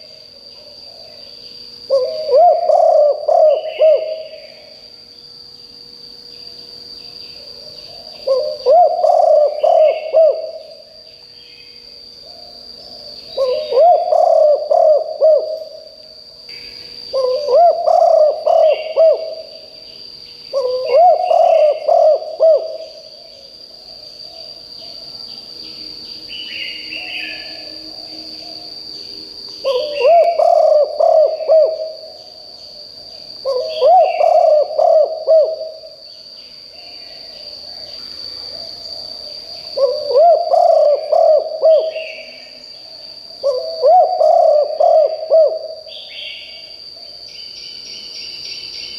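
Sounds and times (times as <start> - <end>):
dove cooing: 1.9 - 4.6, 7.4 - 10.8, 12.3 - 15.9, 17.1 - 19.6, 20.5 - 23.0, 29.6 - 32.2, 33.4 - 36.0, 39.8 - 42.5, 43.4 - 46.4.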